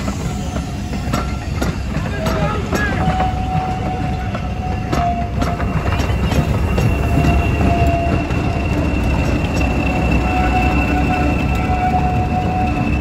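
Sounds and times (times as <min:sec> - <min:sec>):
diesel locomotive engine: 0:00.0 - 0:13.0
wheels clicking over rail joints: 0:00.0 - 0:13.0
high-pitched wheel squeal: 0:02.7 - 0:13.0.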